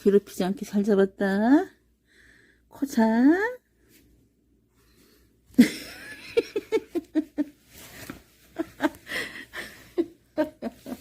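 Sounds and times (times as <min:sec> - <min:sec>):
woman laughing: 0:05.5 - 0:11.0.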